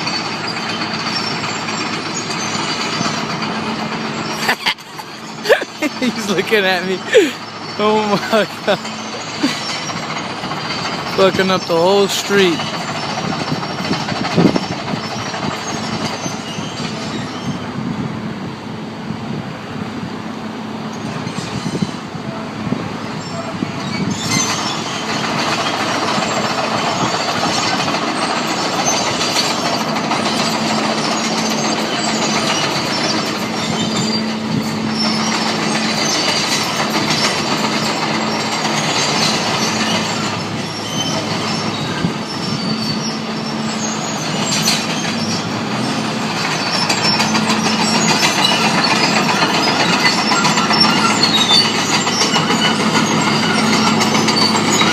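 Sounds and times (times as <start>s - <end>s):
metallic clanking and squealing: 0.0s - 18.0s, 20.8s - 54.9s
tractor engine drone: 0.0s - 54.9s.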